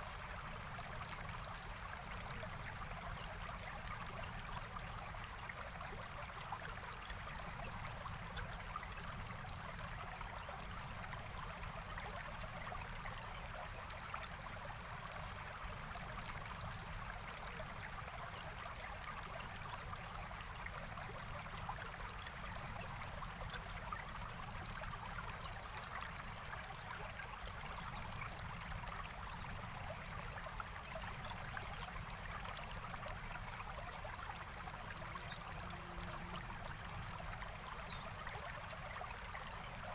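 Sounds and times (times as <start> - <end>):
stream trickling over stones: 0.0 - 39.9
faint bird chirps: 32.6 - 39.0.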